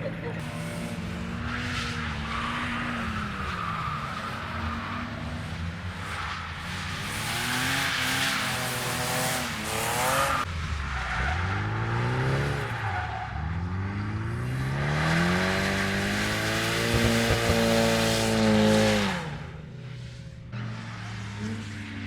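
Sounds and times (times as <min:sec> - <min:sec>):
tyres squealing and skidding: 0:00.0 - 0:14.2
car engine revving hard: 0:13.7 - 0:19.5.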